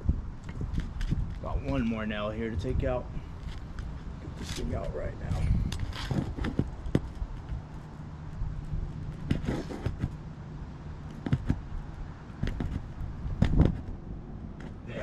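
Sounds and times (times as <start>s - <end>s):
steady low hum: 0.0s - 15.0s
nail puller scraping on shingles: 9.2s - 10.2s.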